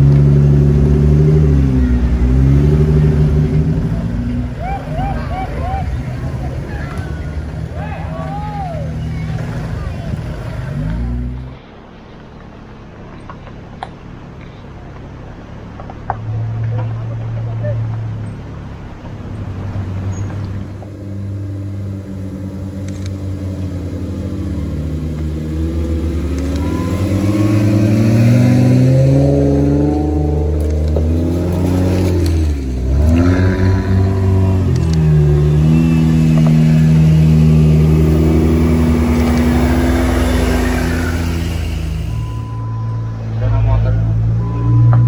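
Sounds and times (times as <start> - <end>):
off-road vehicle engines revving: 0.0 - 45.0.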